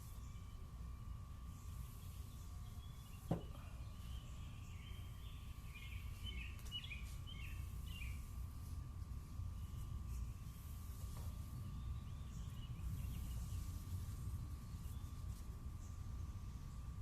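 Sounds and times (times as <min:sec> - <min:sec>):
faint bird chirps: 0:00.0 - 0:17.0
low background rumble: 0:00.0 - 0:17.0
knock: 0:03.3 - 0:03.6.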